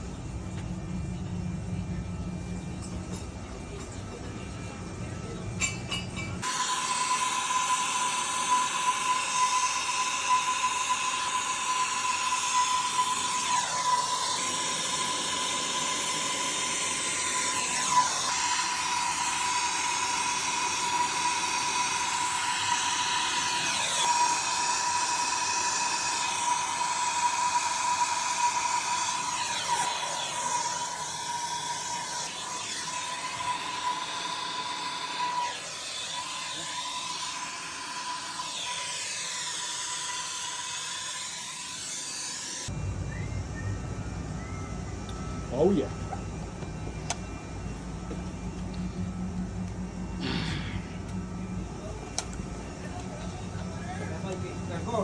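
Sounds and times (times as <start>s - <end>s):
soldering torch hissing: 6.4s - 42.7s.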